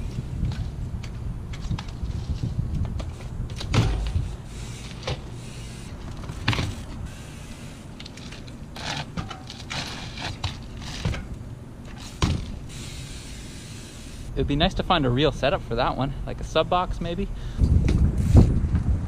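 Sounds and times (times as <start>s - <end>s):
bike tyres and frame thumping: 0.0s - 14.3s
bike rolling noise: 0.0s - 19.0s.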